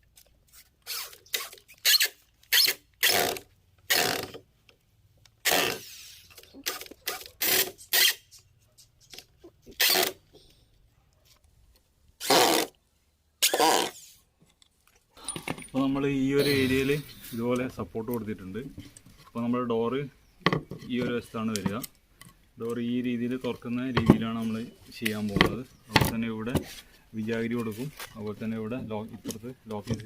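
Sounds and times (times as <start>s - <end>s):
short rasping bursts: 0.5s - 4.4s, 5.4s - 9.1s, 12.2s - 12.8s.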